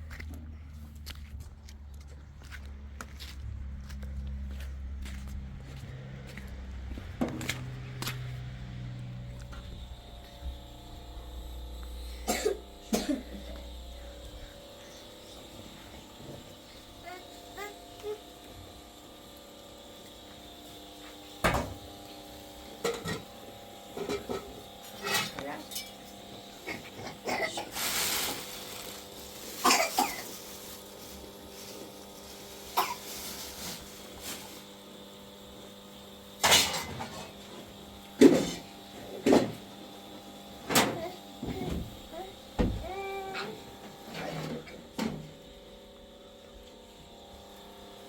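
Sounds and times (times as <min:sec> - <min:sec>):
faint steady hum: 0:08.7 - 0:48.0.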